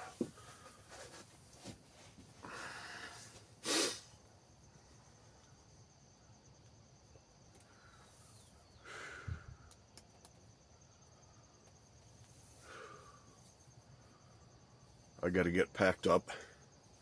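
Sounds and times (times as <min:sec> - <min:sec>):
person exhaling breathily: 0:02.4 - 0:04.0, 0:08.8 - 0:09.6.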